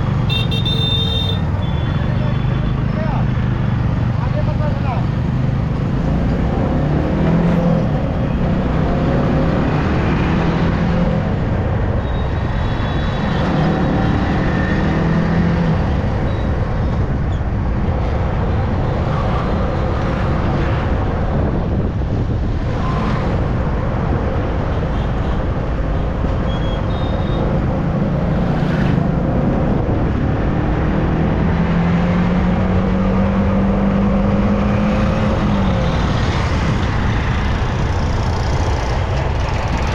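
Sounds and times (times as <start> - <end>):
road noise: 0.0 - 39.9
traffic: 0.0 - 39.9
wind rush: 16.8 - 24.8.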